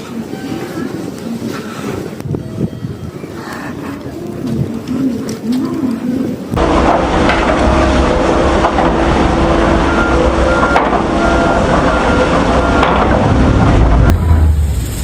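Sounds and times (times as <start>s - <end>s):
loud vehicle rumbling: 6.5s - 15.0s.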